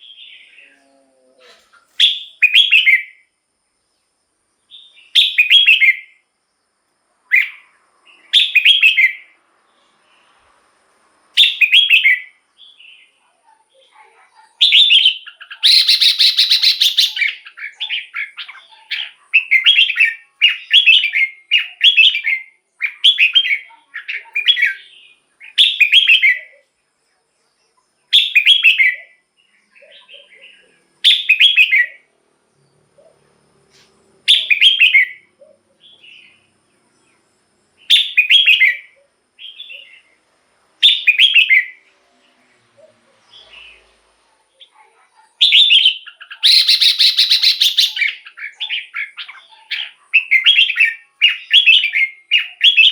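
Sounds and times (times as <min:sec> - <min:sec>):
bird singing whistled phrases: 0:01.9 - 0:03.2, 0:04.7 - 0:06.2, 0:07.3 - 0:09.4, 0:11.4 - 0:13.1, 0:14.6 - 0:26.6, 0:28.1 - 0:29.2, 0:31.0 - 0:32.0, 0:34.3 - 0:36.3, 0:37.8 - 0:40.1, 0:40.8 - 0:41.8, 0:45.4 - 0:52.9
noisy bird call: 0:14.4 - 0:26.7, 0:42.6 - 0:52.9.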